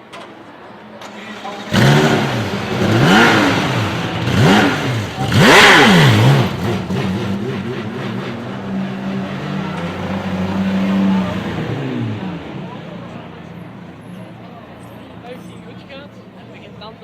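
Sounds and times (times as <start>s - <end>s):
race car engine revving: 1.0s - 14.4s.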